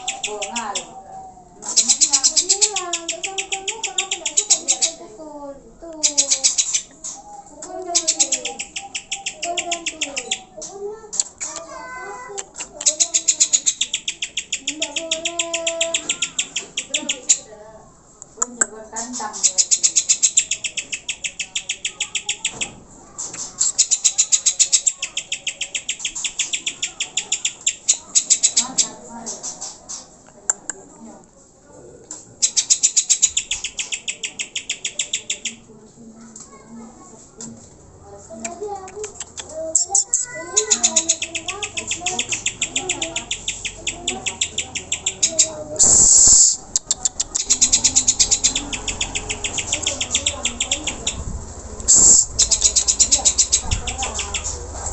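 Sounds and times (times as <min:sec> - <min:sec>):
bird chattering high notes: 0:00.0 - 0:01.0, 0:01.7 - 0:05.1, 0:06.0 - 0:07.2, 0:07.9 - 0:10.6, 0:12.7 - 0:17.5, 0:19.3 - 0:22.7, 0:23.5 - 0:29.0, 0:32.4 - 0:35.6, 0:39.1 - 0:51.3, 0:51.9 - 0:54.7.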